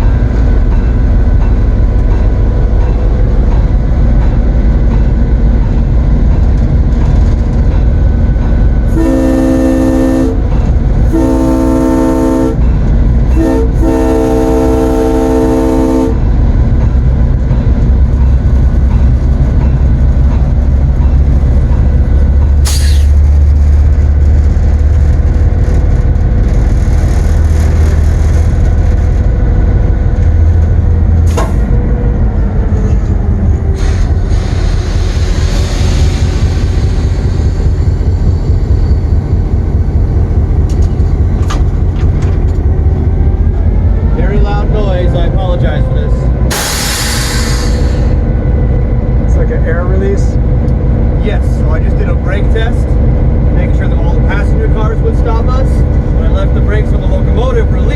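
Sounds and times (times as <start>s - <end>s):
locomotive engine rumble: 0.0s - 57.9s
train horn: 8.9s - 12.7s, 13.3s - 16.3s
air brake hiss: 22.7s - 23.1s, 46.5s - 48.2s.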